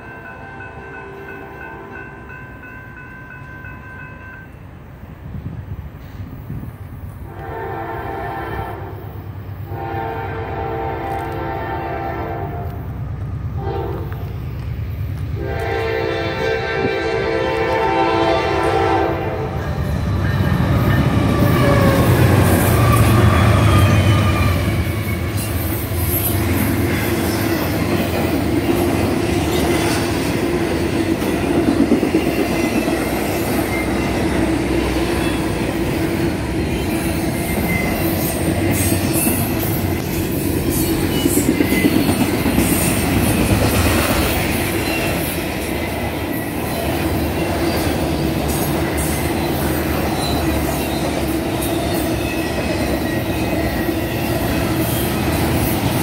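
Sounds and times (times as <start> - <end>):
freight train rumble: 0.0 - 56.0
steel wheels squealing and clacking: 36.7 - 56.0.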